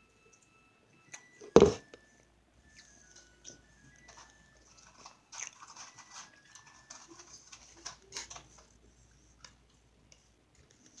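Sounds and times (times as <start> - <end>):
small clicks and crackles: 2.7 - 11.0
chewing and mouth sounds: 5.3 - 6.6.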